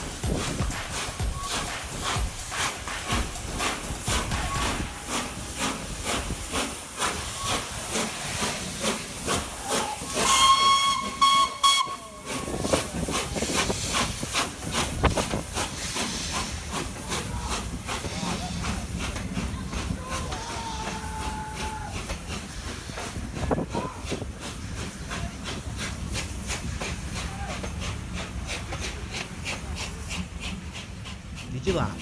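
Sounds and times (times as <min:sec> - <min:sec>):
steam locomotive exhaust beats: 0:00.0 - 0:32.0
steam locomotive whistle blast: 0:04.3 - 0:05.5, 0:09.6 - 0:12.9.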